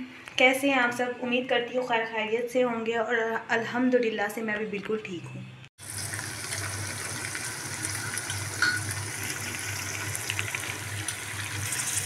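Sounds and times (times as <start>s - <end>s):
chicken frying in oil: 5.8s - 12.0s.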